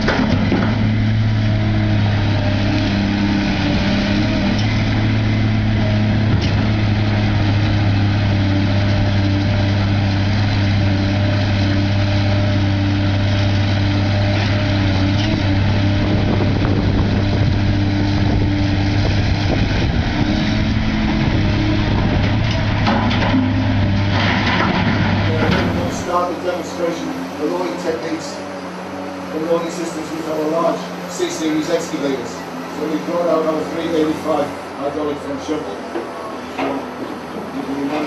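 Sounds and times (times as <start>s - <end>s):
machinery clatter: 0.0s - 28.4s
large diesel engine droning: 0.0s - 38.0s.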